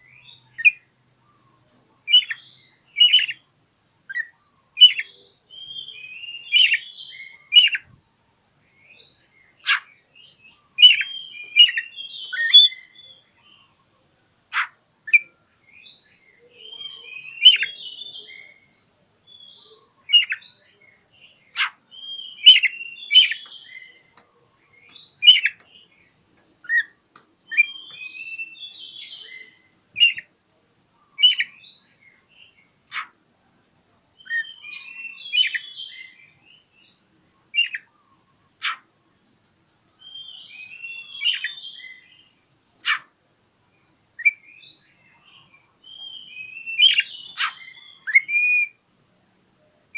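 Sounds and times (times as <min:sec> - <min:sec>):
magpie-robin singing: 0:00.0 - 0:08.0, 0:08.7 - 0:13.9, 0:14.5 - 0:30.3, 0:31.0 - 0:33.2, 0:34.2 - 0:38.9, 0:39.9 - 0:43.1, 0:43.7 - 0:48.8.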